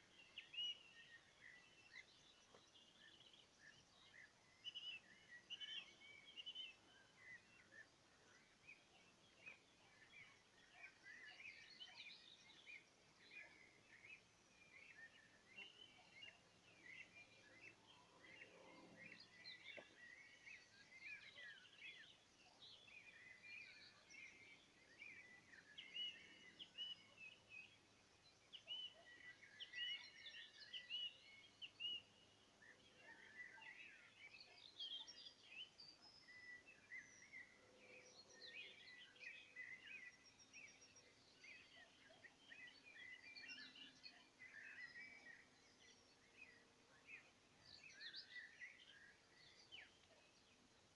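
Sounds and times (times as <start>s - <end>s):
songbirds singing and chirping: 0.0s - 50.9s.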